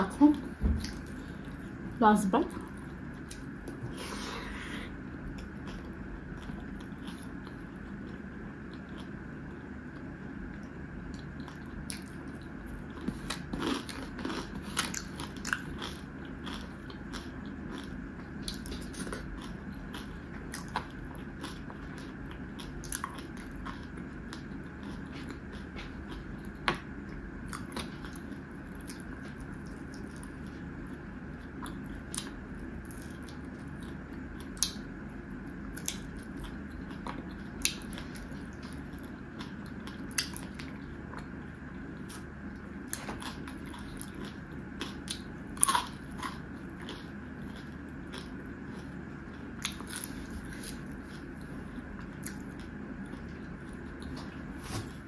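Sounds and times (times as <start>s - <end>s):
low background hum: 0.0s - 55.0s
chewing and mouth sounds: 2.5s - 4.0s, 5.3s - 54.5s.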